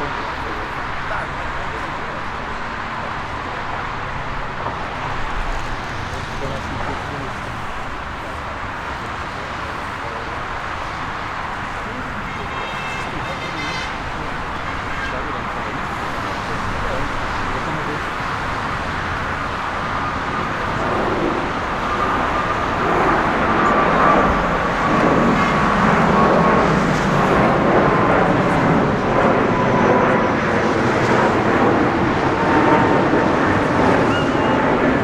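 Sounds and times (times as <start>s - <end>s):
jet engine rushing noise: 0.0s - 35.0s
jet engines whining: 0.0s - 35.0s.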